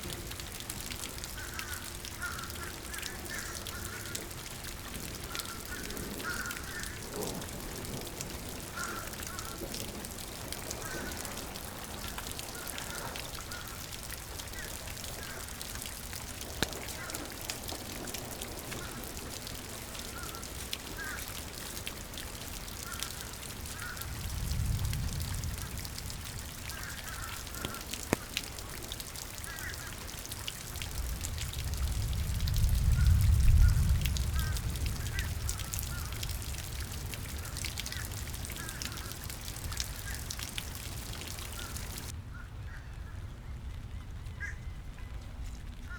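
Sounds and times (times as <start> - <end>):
steady rain: 0.0 - 45.9
birds calling: 37.4 - 42.1.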